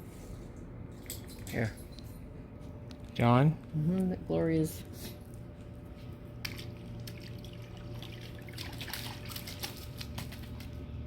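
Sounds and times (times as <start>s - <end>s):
steady low hum: 0.0s - 11.0s
water dripping and splashing: 6.4s - 10.8s.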